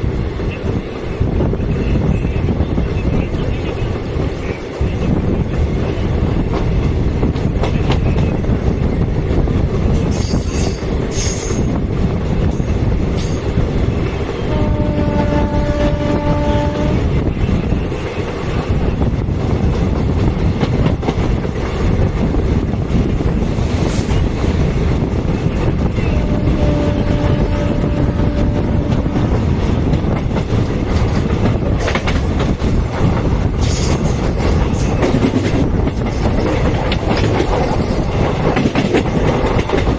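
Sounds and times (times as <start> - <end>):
train wheels clattering on rails: 0.0 - 39.9
train horn: 14.4 - 17.2, 26.0 - 29.4.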